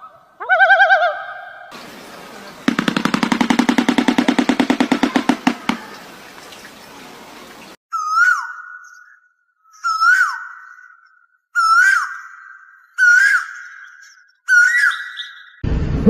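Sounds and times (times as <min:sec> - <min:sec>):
steady hiss: 0:01.7 - 0:07.8
bird clattering its bill: 0:01.8 - 0:06.8.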